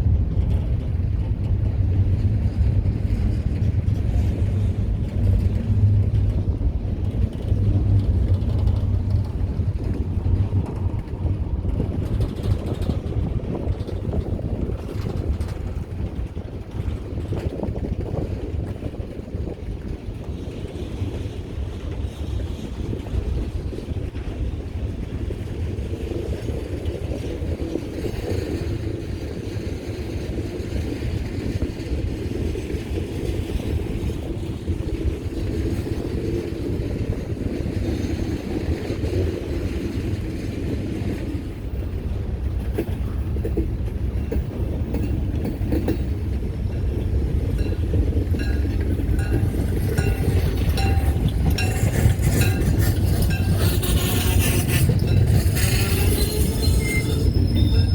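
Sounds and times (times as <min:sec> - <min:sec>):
freight train rumbling on rails: 0:00.0 - 0:57.9
wheels clicking over rail joints: 0:00.0 - 0:57.9.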